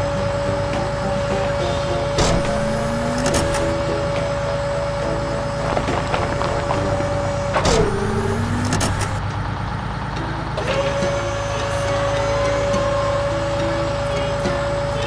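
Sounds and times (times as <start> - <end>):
swooping sound: 0.0 - 9.2
cartoon truck engine hum: 0.0 - 15.0.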